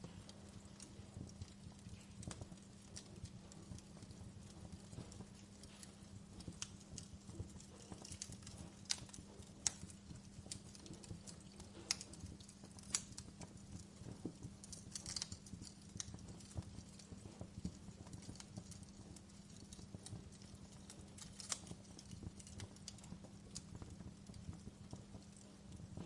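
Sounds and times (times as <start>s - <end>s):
low fire rumble: 0.0s - 26.0s
wood fire pops and snaps: 0.0s - 26.0s.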